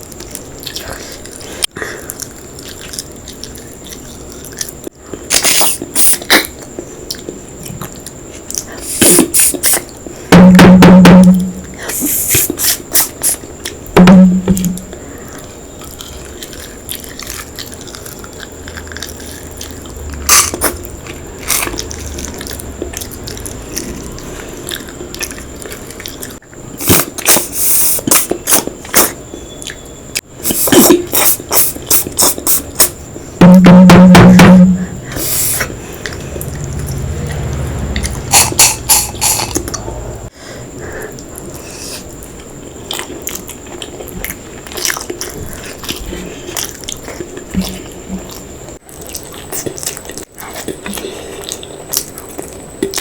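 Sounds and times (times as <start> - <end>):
chewing food close up: 0.0 - 10.2, 14.9 - 33.0, 40.8 - 53.0
loud low hum: 10.3 - 11.8, 14.0 - 15.1, 33.4 - 40.3.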